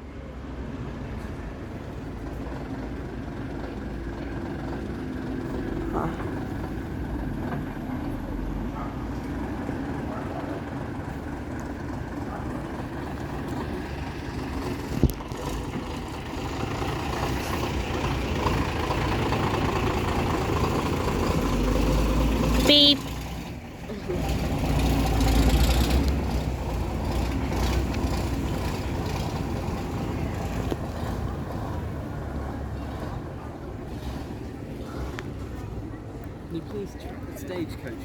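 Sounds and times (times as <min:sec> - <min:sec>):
diesel bus engines running: 0:00.0 - 0:38.0.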